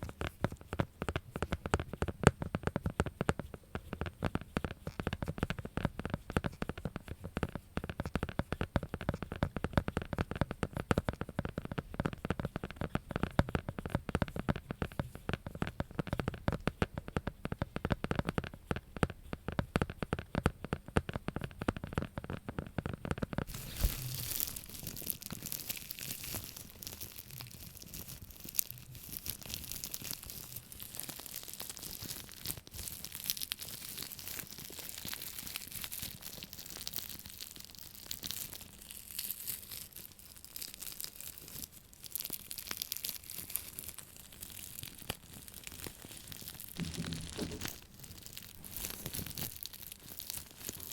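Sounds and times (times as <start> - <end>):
rapid tapping on object: 0.0 - 23.5
high-pitched crinkly scratching: 23.4 - 50.9.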